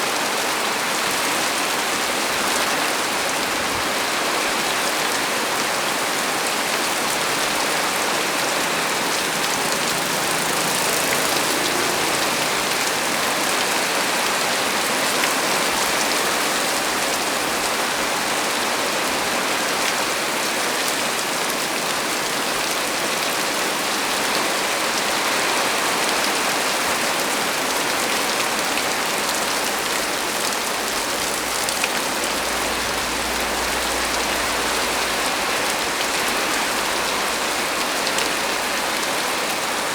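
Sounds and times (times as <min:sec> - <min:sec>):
heavy rain on leaves: 0:00.0 - 0:39.9
faint low rumble: 0:31.0 - 0:37.4.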